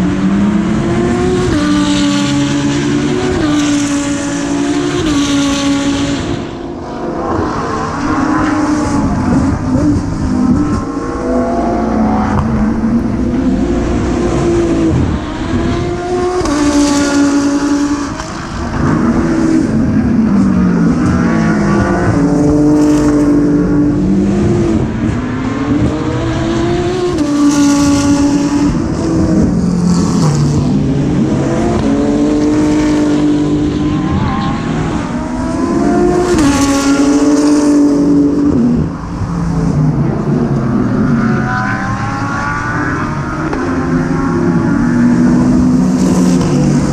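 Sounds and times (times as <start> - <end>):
race car engine shifting gears: 0.6 - 46.9.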